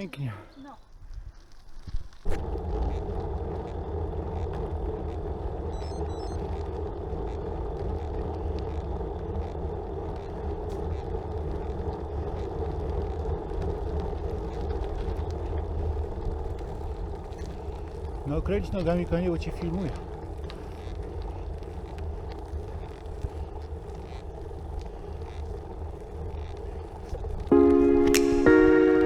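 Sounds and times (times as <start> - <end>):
click: 26.4 - 28.7.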